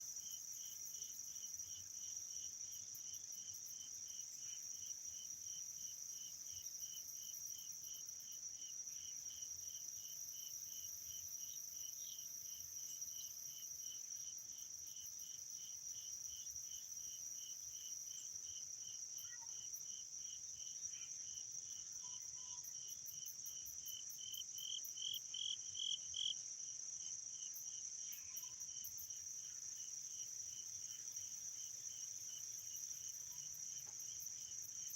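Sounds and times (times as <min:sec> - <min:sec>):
crickets chirping: 0:00.0 - 0:34.9
insects trilling: 0:18.1 - 0:26.4.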